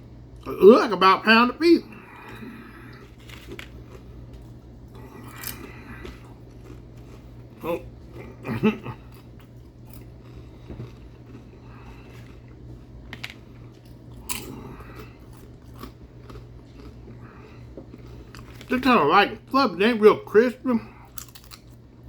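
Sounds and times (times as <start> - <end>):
low hum: 0.0 - 22.0
person chewing food: 1.9 - 18.8, 20.9 - 22.0
person murmuring: 7.6 - 9.0.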